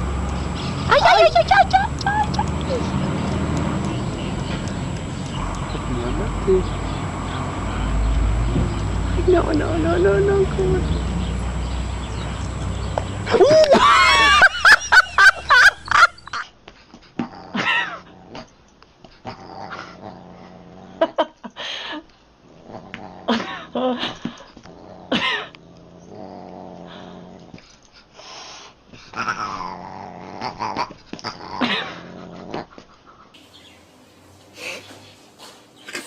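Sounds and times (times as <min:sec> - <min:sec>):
animals growling: 0:00.0 - 0:16.3, 0:17.2 - 0:18.5, 0:19.2 - 0:21.2, 0:22.5 - 0:27.6, 0:29.1 - 0:32.8
drawn-out yowling calls: 0:04.0 - 0:08.3.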